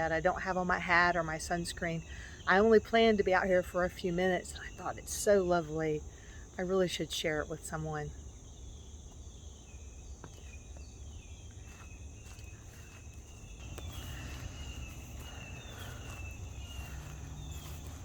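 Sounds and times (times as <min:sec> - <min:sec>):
insects trilling: 0:00.0 - 0:18.0
bird chirping: 0:07.7 - 0:18.0.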